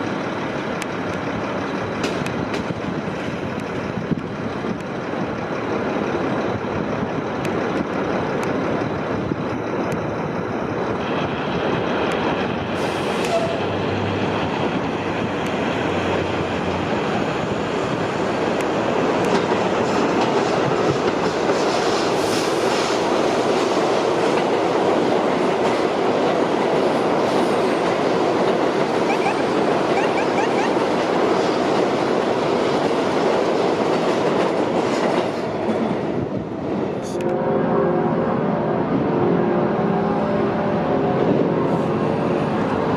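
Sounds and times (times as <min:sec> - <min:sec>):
subway train running on track: 0:00.0 - 0:42.9
high-pitched squeals: 0:29.0 - 0:30.9.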